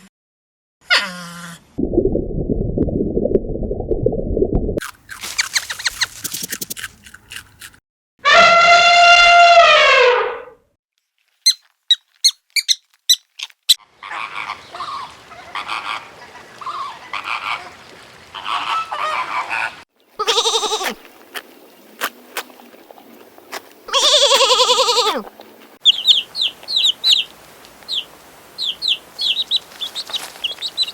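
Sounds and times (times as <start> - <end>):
waterfowl chirping: 13.7 - 19.8, 25.8 - 30.9
waterfowl honking: 13.8 - 19.8, 27.9 - 30.9
background hiss: 25.7 - 30.9.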